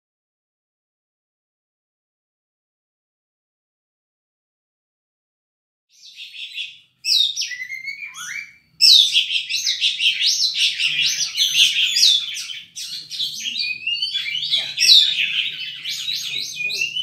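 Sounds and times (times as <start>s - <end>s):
magpie-robin singing: 5.9s - 17.0s.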